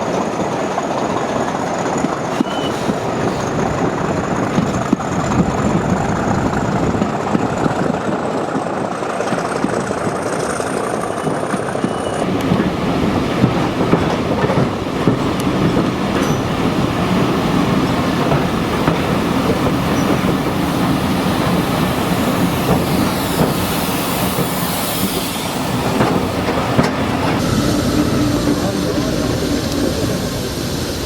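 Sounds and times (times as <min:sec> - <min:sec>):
train rolling on rails: 0:00.0 - 0:31.0
wheels clicking over rail joints: 0:00.2 - 0:30.3
faint wheel squeal: 0:02.4 - 0:03.0.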